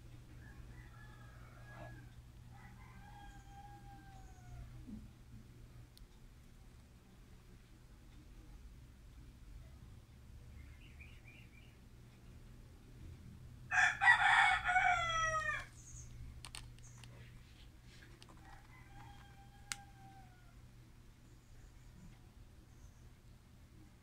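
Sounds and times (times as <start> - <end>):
faint clicks: 18.0 - 20.4.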